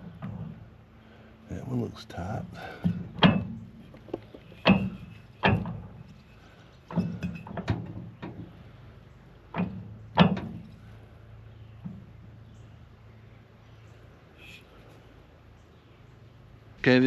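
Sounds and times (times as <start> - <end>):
metal blades knocking and clanking: 3.2 - 5.8.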